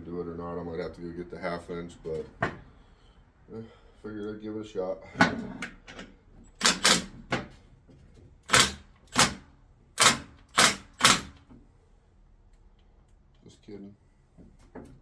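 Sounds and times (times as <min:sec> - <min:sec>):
impact wrench hammering: 0:06.6 - 0:07.2, 0:08.4 - 0:11.4.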